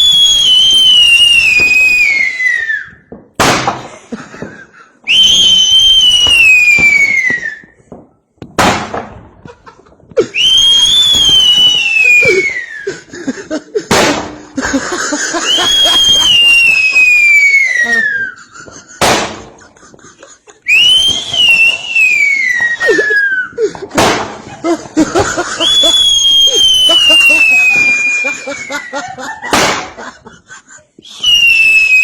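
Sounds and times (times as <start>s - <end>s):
firework whistle falling in pitch: 0.0s - 3.0s, 5.1s - 7.8s, 10.4s - 12.8s, 15.5s - 18.4s, 20.7s - 23.6s, 25.6s - 28.9s, 31.1s - 32.0s
firework bang: 3.1s - 4.5s, 5.4s - 9.5s, 13.9s - 14.9s, 18.9s - 19.7s, 23.8s - 28.3s, 29.3s - 30.2s.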